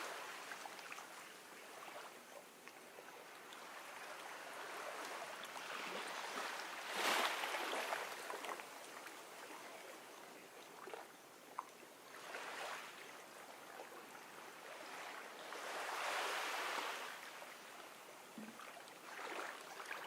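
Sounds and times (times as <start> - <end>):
gentle waves lapping at shore: 0.0 - 20.0.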